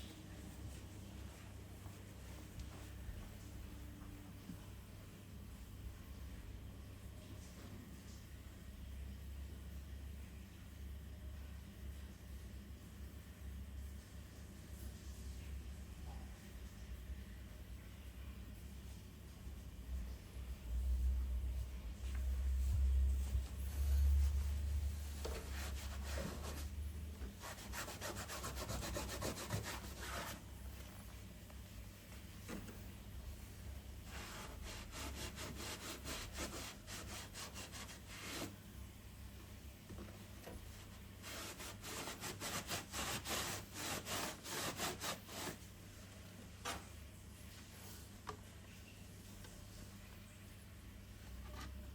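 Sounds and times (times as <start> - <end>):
rhythmic hand sanding strokes: 23.7 - 26.8, 27.4 - 30.4, 34.1 - 38.5, 41.2 - 45.6.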